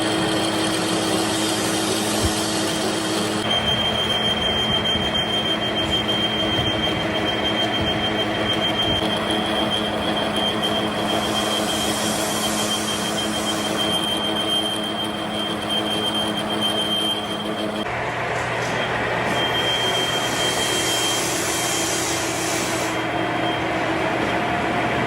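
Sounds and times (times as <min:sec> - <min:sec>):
workshop machinery running: 0:00.0 - 0:25.0
metal on metal squeal: 0:03.4 - 0:17.8, 0:18.4 - 0:24.4.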